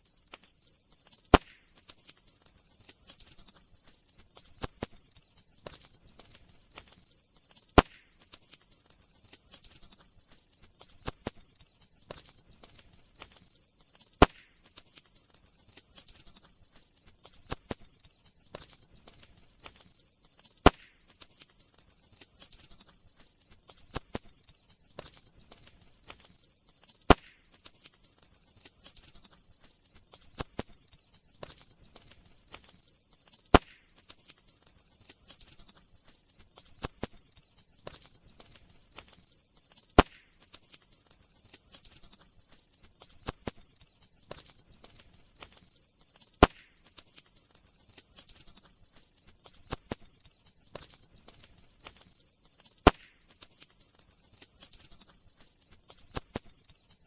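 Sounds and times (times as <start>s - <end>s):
faint steady hiss: 0.0s - 57.0s
sharp loud pop: 1.3s - 1.6s, 7.8s - 8.1s, 14.2s - 14.5s, 20.6s - 21.0s, 52.9s - 53.2s.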